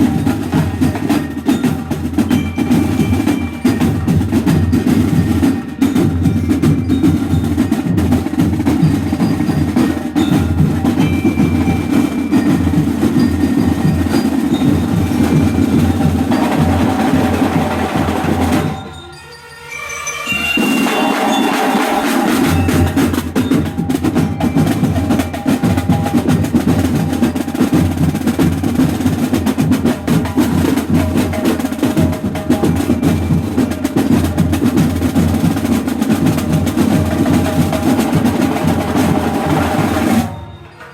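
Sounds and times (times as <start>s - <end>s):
fast snare drum cadence: 20.6s - 40.3s.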